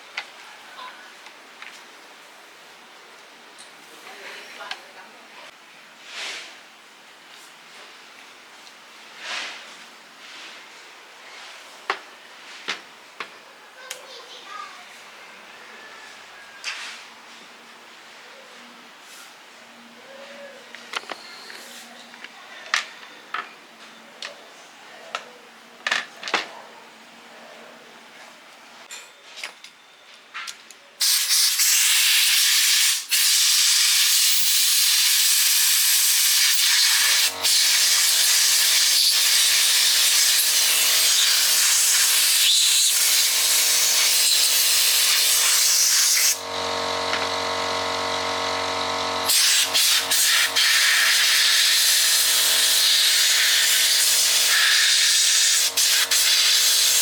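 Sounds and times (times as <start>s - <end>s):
loud hiss of air: 31.0s - 46.4s, 49.3s - 57.0s
motor humming: 36.8s - 57.0s.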